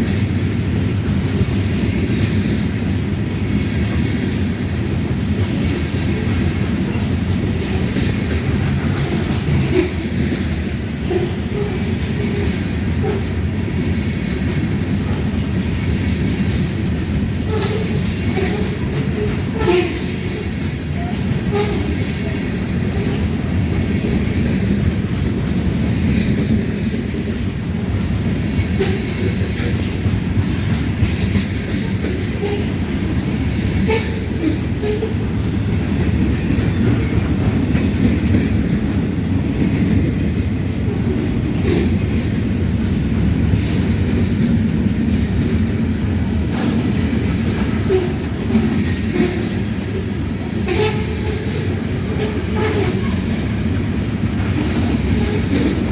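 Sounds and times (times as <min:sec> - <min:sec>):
freight train rumbling past: 0:00.0 - 0:55.9
wheels clicking over rail joints: 0:00.0 - 0:55.9.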